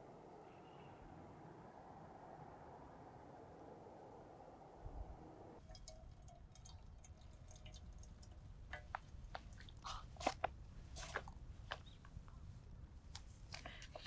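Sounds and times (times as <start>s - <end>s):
wet chewing clicks and smacks: 5.8s - 12.0s.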